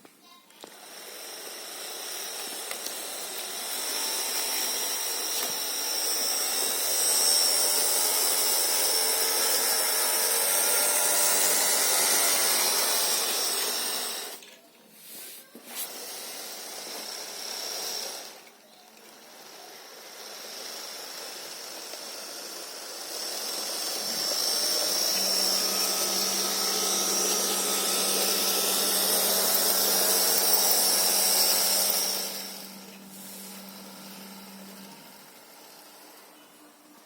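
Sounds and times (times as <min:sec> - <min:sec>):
model train motor whirring: 0:00.3 - 0:37.0.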